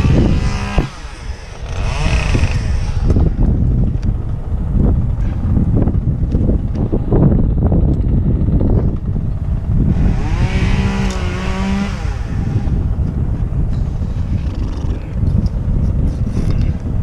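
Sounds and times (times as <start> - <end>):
pitched drone: 0.0 - 17.0
wind buffeting microphone: 0.0 - 17.0.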